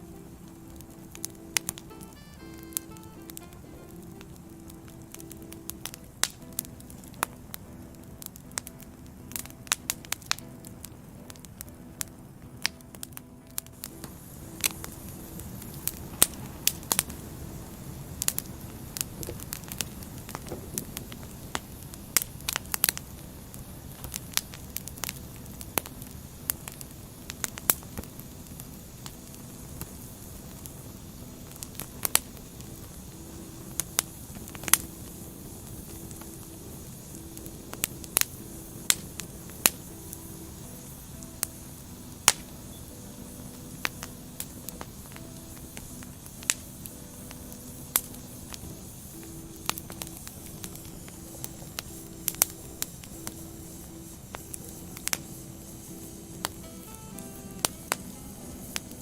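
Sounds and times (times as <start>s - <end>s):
firewood crackling and popping: 0.0s - 59.0s
low hiss of fire: 0.0s - 59.0s.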